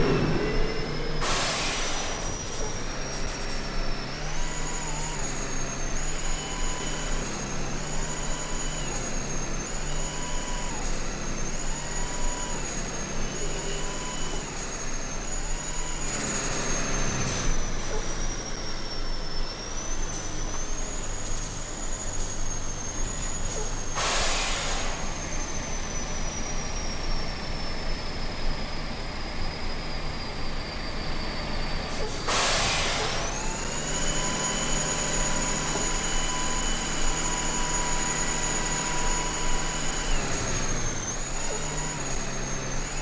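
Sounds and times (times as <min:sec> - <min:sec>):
high whine stepping in pitch: 0:00.0 - 0:02.5
truck engine and road noise: 0:00.0 - 0:43.0.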